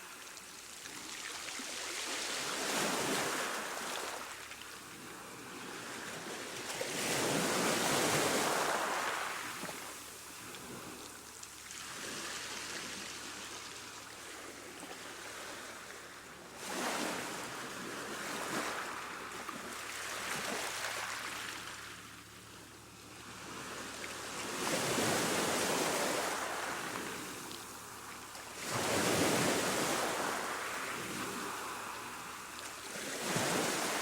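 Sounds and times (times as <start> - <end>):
ocean waves crashing on shore: 6.8 - 11.0, 23.4 - 27.9, 28.5 - 34.0.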